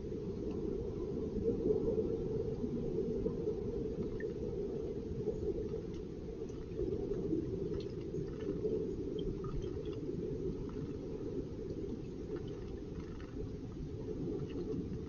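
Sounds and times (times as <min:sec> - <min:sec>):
faint high ticks: 0:12.3 - 0:13.6.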